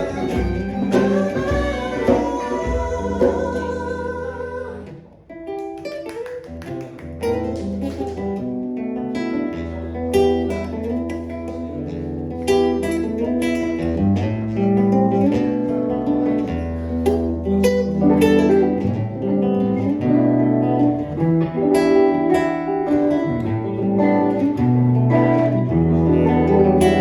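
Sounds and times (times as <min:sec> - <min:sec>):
low bass line: 0:00.0 - 0:05.0
strummed guitar chords: 0:00.0 - 0:06.1, 0:06.8 - 0:27.0.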